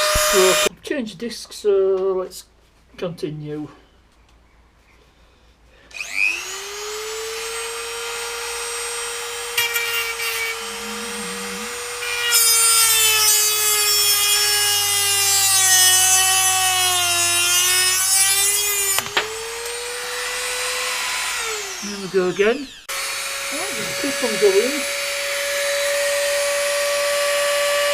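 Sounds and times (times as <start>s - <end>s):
rotary tool cutting metal: 0.0s - 0.7s, 6.0s - 27.9s.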